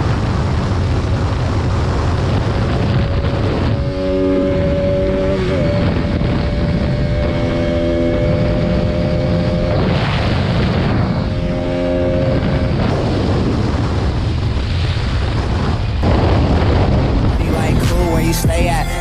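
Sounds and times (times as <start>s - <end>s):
wind rush on microphone: 0.0s - 17.4s.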